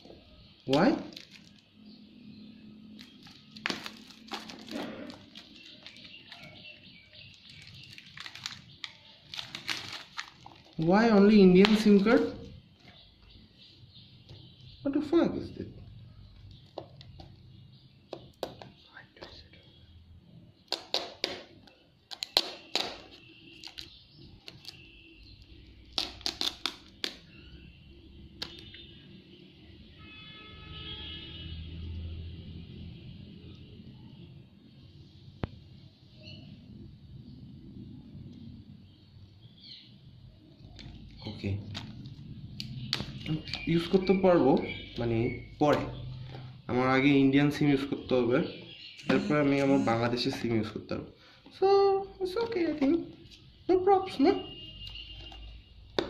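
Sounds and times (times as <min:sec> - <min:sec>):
packaging crinkling and rustling: 0:01.0 - 0:01.7, 0:03.0 - 0:12.0.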